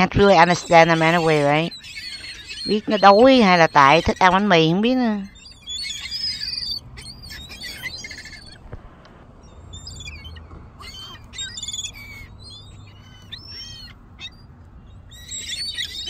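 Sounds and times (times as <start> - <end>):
seagulls calling: 0.0 - 16.0.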